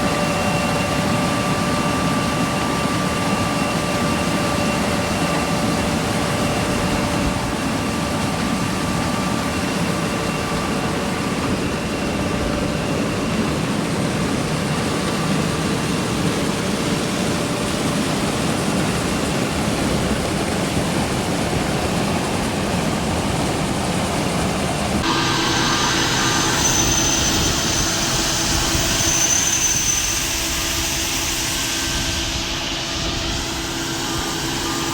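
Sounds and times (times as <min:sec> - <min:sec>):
machine rumbling with whine: 0:25.0 - 0:34.9.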